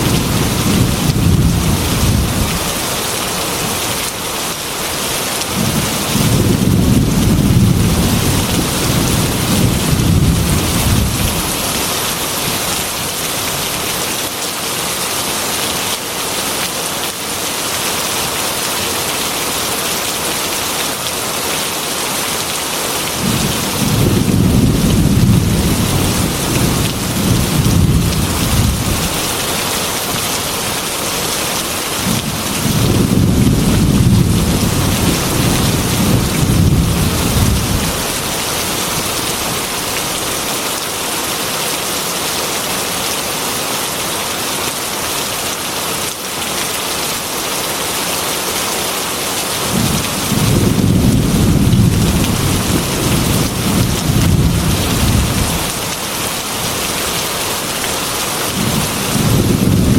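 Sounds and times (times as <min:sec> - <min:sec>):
low thunder rumbling: 0:00.0 - 0:02.7, 0:05.5 - 0:11.8, 0:23.2 - 0:29.2, 0:32.0 - 0:38.2, 0:49.7 - 0:55.7, 0:58.5 - 0:59.9
heavy rain on glass window: 0:00.0 - 0:59.9.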